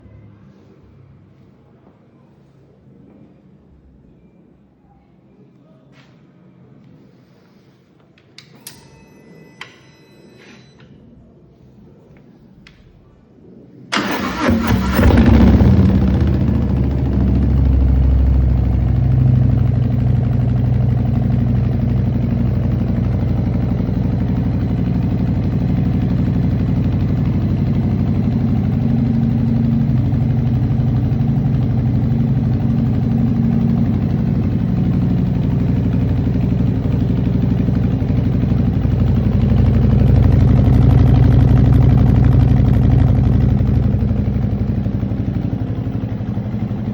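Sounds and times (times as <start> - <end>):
motorcycle engine idling: 13.9 - 46.9.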